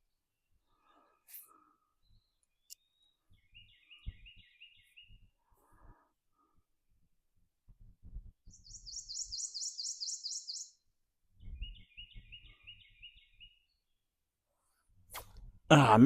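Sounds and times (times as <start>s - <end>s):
songbird singing: 1.9s - 5.4s, 8.4s - 14.3s.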